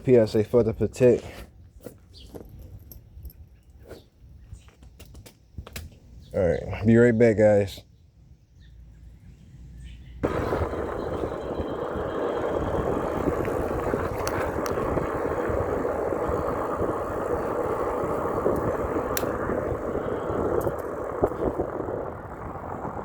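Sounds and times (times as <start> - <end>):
bicycle tyre noise: 10.2 - 23.0
rushing wind: 10.2 - 23.0.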